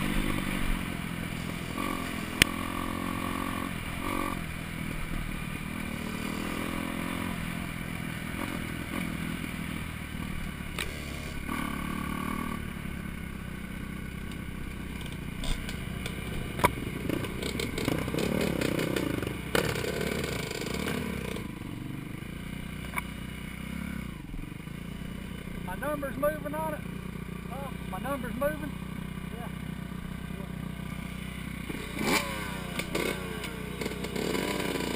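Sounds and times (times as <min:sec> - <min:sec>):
dirt bike engine revving: 0:00.0 - 0:34.9.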